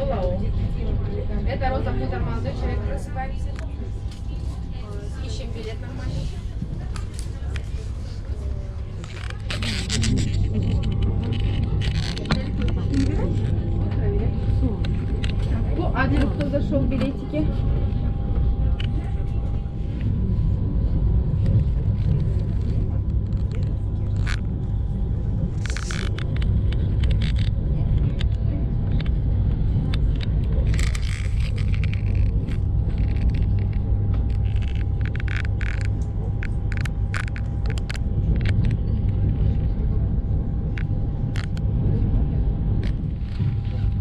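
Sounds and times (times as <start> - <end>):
faint steady whine: 0.0 - 44.0
short rattles and clicks: 29.8 - 39.2.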